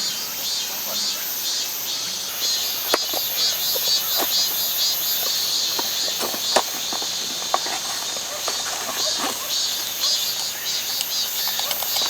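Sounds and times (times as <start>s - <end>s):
crickets chirping: 0.0s - 12.0s
sharp clicks: 5.2s - 12.0s.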